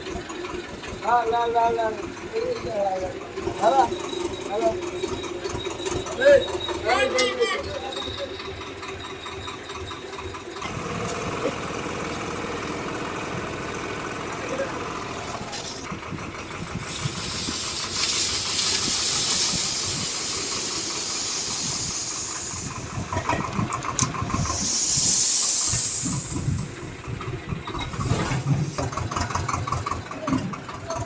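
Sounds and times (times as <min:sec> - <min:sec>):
tractor diesel engine straining: 0:00.0 - 0:31.0
loud hissing: 0:10.8 - 0:23.3, 0:24.3 - 0:28.9.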